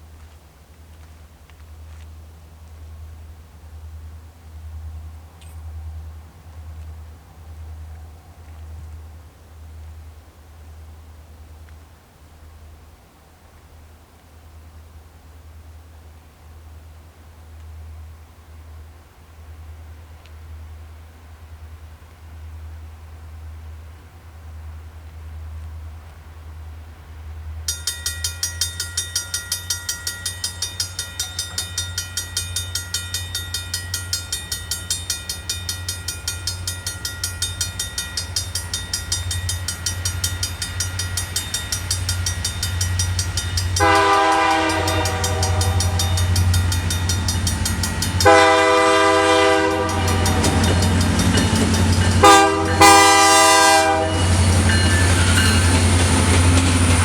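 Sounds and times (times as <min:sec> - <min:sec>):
deep train rumble: 0:00.0 - 0:57.0
crossing warning bell dinging: 0:27.6 - 0:57.0
locomotive horn blasts: 0:43.7 - 0:46.6, 0:48.0 - 0:55.7.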